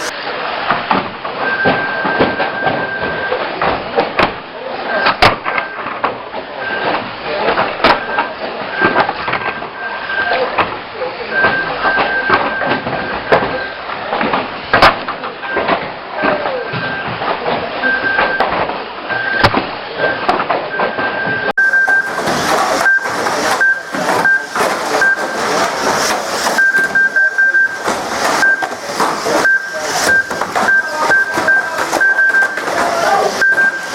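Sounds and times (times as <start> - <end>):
background voices: 0.0 - 0.6, 21.3 - 33.9
short high electronic beep: 21.1 - 28.7, 29.3 - 33.9.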